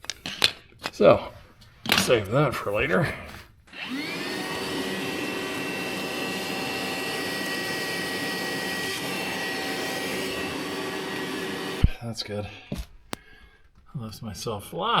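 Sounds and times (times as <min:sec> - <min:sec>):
electric motor whining: 0:03.8 - 0:11.9.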